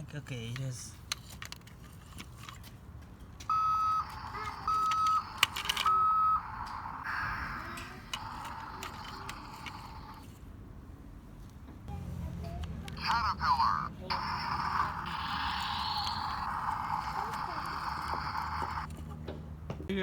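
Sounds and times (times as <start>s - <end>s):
toys being handled clicks: 0.0s - 10.5s, 12.6s - 19.1s
toy truck beeps: 3.5s - 10.4s, 12.3s - 19.0s
buzzy hissy toy speaker noise: 12.9s - 18.9s.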